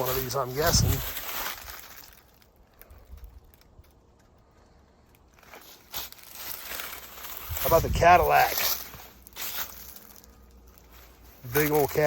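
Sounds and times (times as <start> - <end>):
small clicks and crunches: 0.0 - 7.7
faint footsteps: 0.0 - 12.0.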